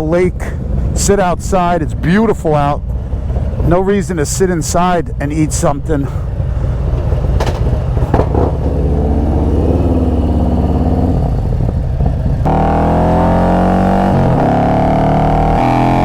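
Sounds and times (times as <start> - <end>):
motorcycle engine revving: 6.2 - 16.0.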